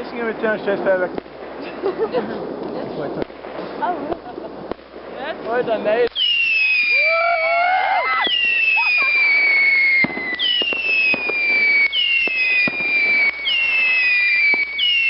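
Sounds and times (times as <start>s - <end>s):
firework pops and bangs: 0.0s - 15.0s
firework whistles sliding down: 5.8s - 15.0s.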